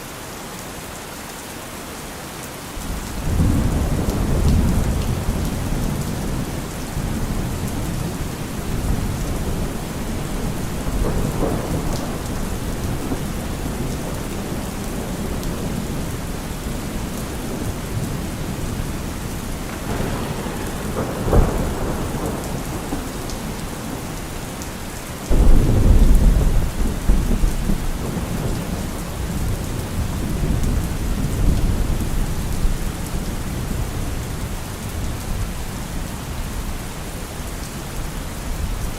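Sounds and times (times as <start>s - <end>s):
heavy rain hissing: 0.8s - 38.8s
thunder rumbling: 2.8s - 34.5s
thunder crack: 7.0s - 16.0s, 17.4s - 32.0s.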